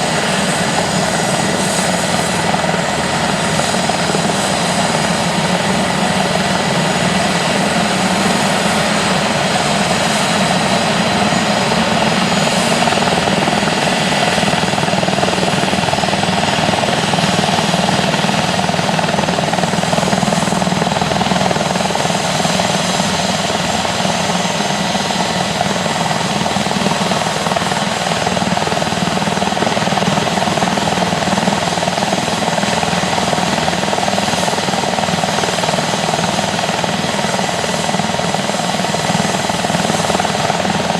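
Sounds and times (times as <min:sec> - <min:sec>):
turbine whine: 0:00.0 - 0:31.8
helicopter rotor running: 0:00.0 - 0:40.9.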